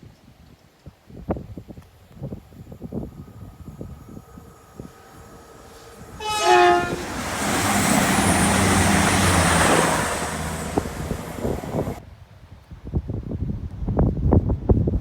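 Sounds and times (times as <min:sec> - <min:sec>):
train rushing past: 0:02.3 - 0:12.0
train horn blast: 0:04.6 - 0:12.0.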